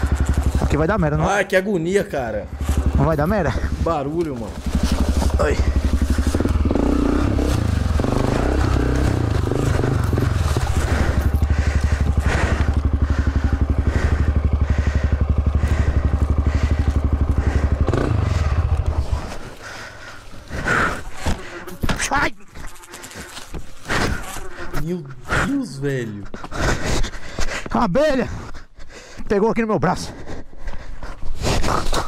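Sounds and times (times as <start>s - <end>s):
motorcycle engine running: 0.0s - 24.7s.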